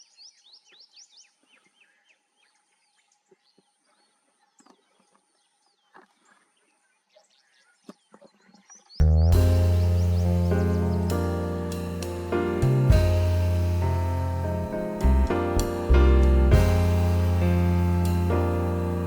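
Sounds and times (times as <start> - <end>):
birds chirping: 7.1 - 19.0
loud instrumental music: 9.3 - 19.0.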